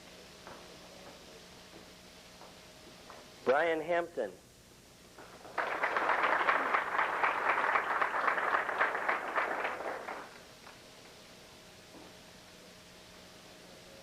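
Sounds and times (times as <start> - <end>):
audience applause: 5.2 - 10.4.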